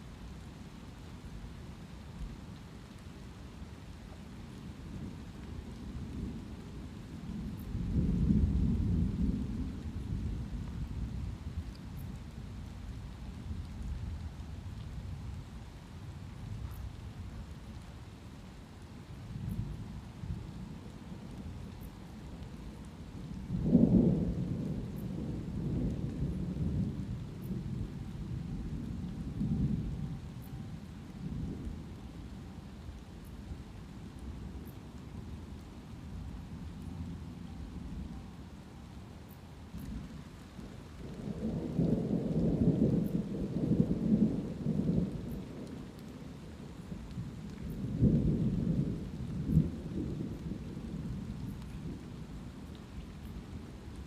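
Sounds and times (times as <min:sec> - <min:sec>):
light rain: 0:00.0 - 0:54.0
thunder rumbling: 0:05.0 - 0:12.8, 0:19.4 - 0:39.0, 0:39.6 - 0:54.0.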